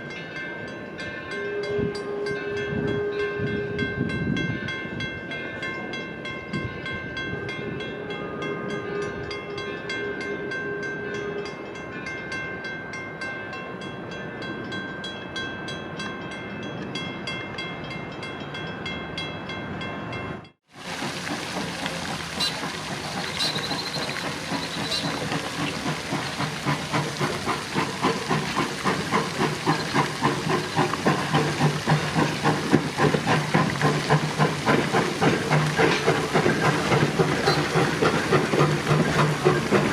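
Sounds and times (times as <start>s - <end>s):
steam train rumble: 0.0s - 39.9s
steam locomotive chuffing and hissing: 20.6s - 39.9s.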